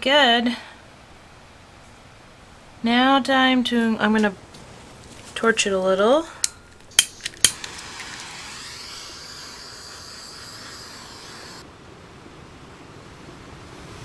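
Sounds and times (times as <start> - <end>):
torch clicks: 6.4 - 11.6
torch flame hissing: 6.9 - 11.6.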